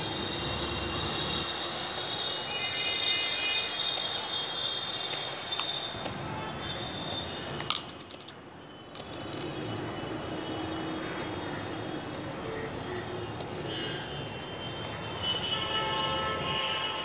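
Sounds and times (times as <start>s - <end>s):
high bird chirps: 9.4s - 13.3s, 14.1s - 16.2s.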